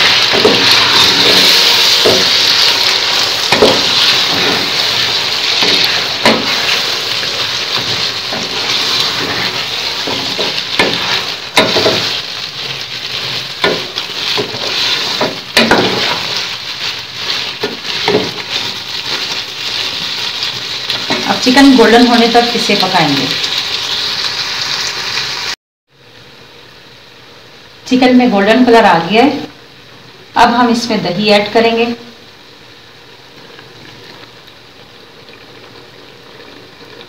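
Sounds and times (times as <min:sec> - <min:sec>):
chicken sizzling in oil: 0:00.0 - 0:25.6
spatula knocking and scraping pot: 0:00.3 - 0:02.6, 0:03.5 - 0:06.8, 0:07.7 - 0:21.4.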